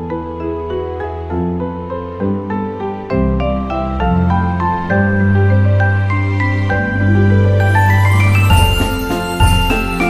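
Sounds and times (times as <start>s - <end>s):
melody of sustained notes: 0.1s - 10.0s.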